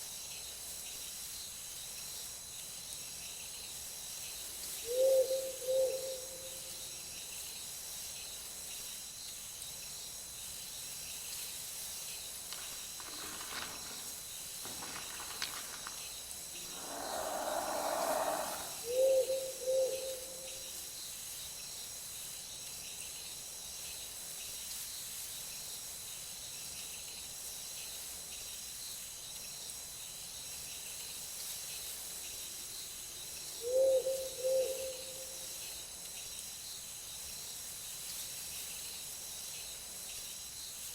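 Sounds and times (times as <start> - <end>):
insect chorus: 0.0 - 40.9
low hoots: 16.6 - 20.2.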